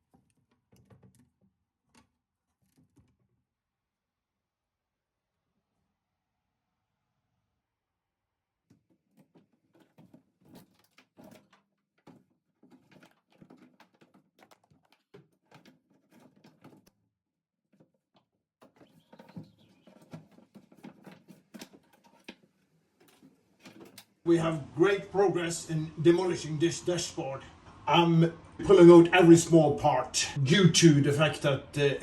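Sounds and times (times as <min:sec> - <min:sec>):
clicking and knocking of parts: 0:00.0 - 0:03.3, 0:08.7 - 0:17.0, 0:17.7 - 0:24.2.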